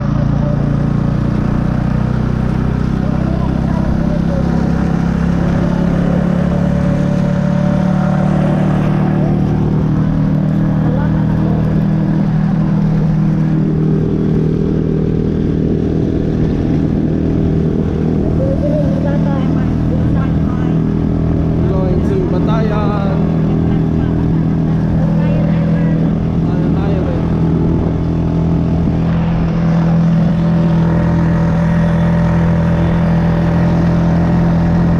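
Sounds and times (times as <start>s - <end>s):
motorbike engine running: 0.0s - 34.9s
wind buffeting: 0.9s - 34.9s.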